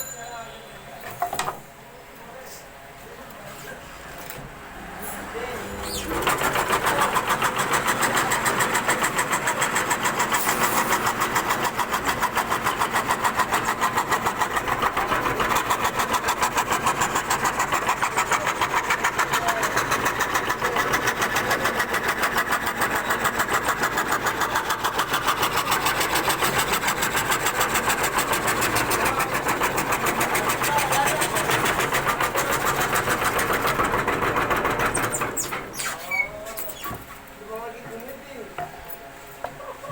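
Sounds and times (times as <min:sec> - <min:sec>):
wood carving machine pulsing: 0:05.2 - 0:36.8.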